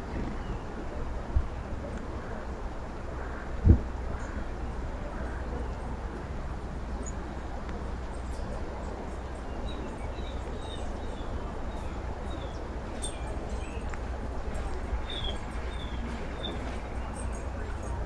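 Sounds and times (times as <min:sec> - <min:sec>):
songbird chirping: 0:08.1 - 0:18.0.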